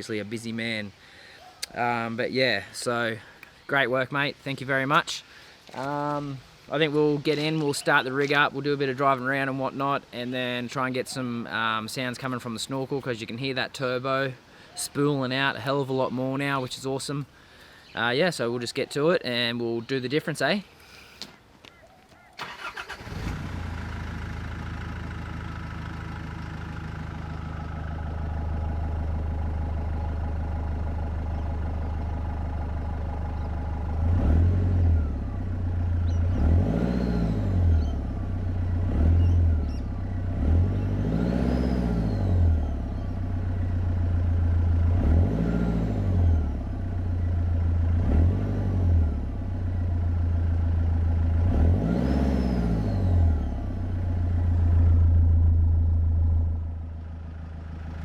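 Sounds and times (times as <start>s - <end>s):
diesel engine idling and revving: 22.4s - 58.0s.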